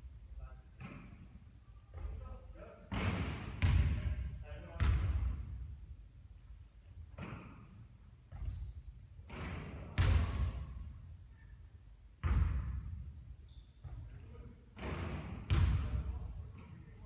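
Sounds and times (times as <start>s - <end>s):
basketball bouncing: 3.0s - 4.1s, 9.3s - 10.6s, 12.2s - 13.1s, 14.8s - 16.0s.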